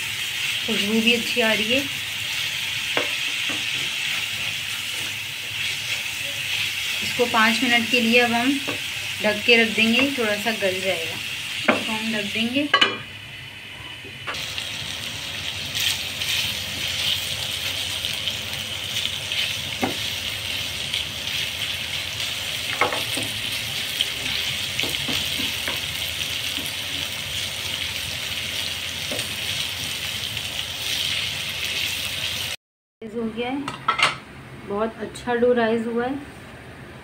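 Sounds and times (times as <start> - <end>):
chicken sizzling in frying pan: 0.0 - 13.4, 14.3 - 32.6.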